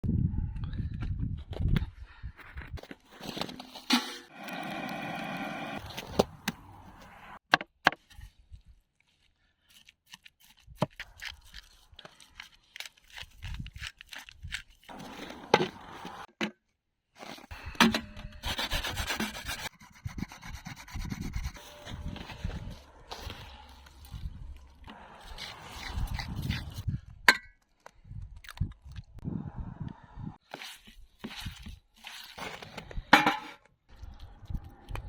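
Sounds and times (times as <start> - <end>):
rasping scraping strokes: 14.9 - 16.3, 17.2 - 26.9.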